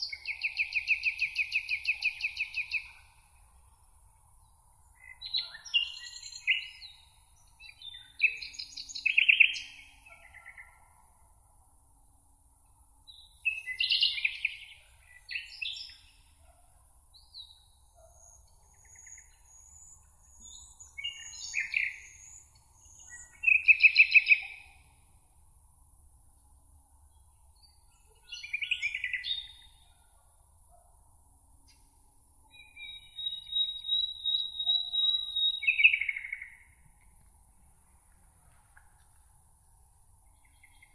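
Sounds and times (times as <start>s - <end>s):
songbird singing: 0.0s - 11.4s, 12.7s - 25.2s, 26.4s - 40.9s
meadow background hiss: 0.0s - 40.9s.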